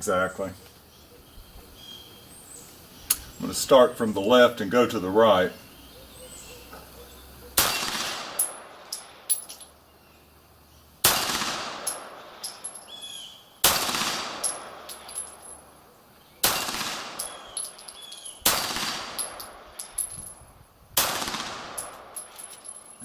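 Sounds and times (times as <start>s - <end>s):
pistol shots with echo: 7.6s - 9.3s, 11.0s - 12.8s, 13.6s - 15.5s, 16.4s - 20.0s, 21.0s - 22.5s
small sharp cracks: 16.4s - 20.1s.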